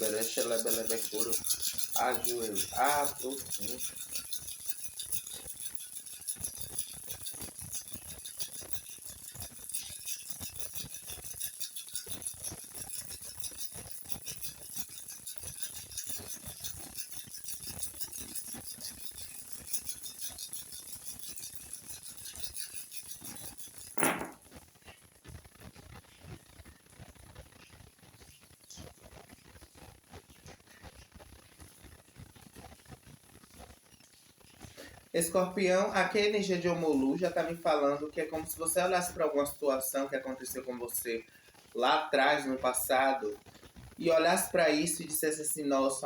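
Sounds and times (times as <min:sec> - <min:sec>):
shells rattling in hands: 0:00.0 - 0:24.4
shells clattering down: 0:24.0 - 0:24.4.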